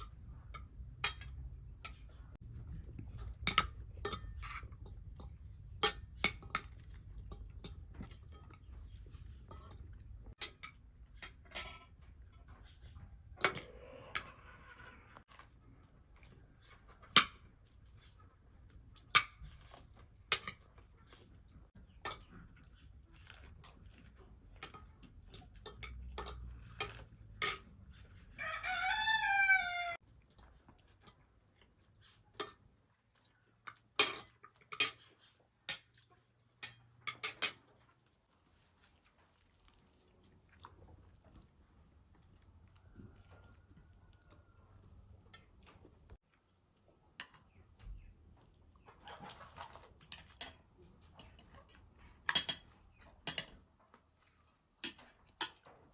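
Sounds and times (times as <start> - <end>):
rooster crowing: 28.4 - 30.0.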